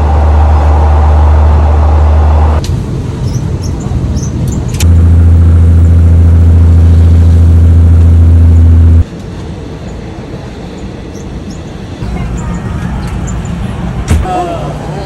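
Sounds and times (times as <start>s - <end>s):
train engine drone: 0.0s - 15.0s
sharp clicks: 4.5s - 5.2s
rumbling: 4.8s - 9.1s.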